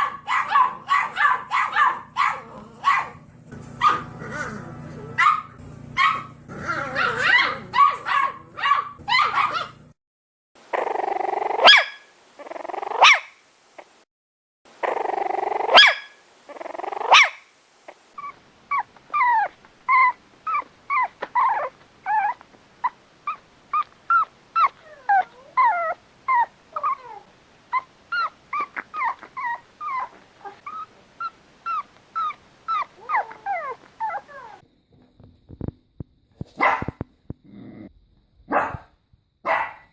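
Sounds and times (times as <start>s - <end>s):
puppies barking and yipping: 0.0s - 10.0s, 36.6s - 37.0s, 39.5s - 39.9s
puppy growling: 0.0s - 10.0s, 12.4s - 13.0s, 14.8s - 15.8s, 16.5s - 17.2s, 18.2s - 34.6s, 36.4s - 38.9s.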